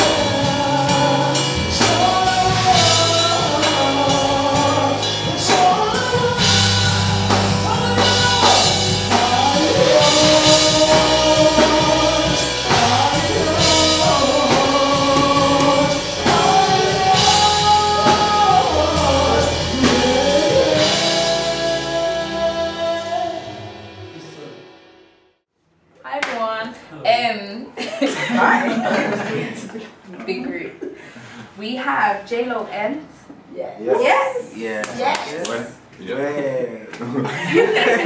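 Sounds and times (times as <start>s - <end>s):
voices singing: 0.0s - 23.5s
drum kit: 0.0s - 25.0s
bass: 0.0s - 25.1s.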